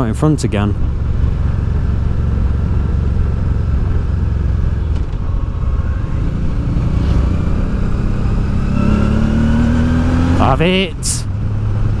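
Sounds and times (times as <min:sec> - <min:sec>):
motorcycle engine running: 0:00.0 - 0:10.7
road and wind noise: 0:00.0 - 0:12.0.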